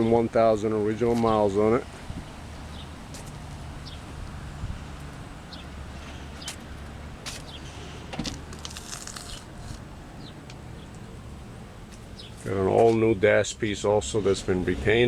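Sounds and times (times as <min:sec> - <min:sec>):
low handling rumble: 0:00.0 - 0:15.0.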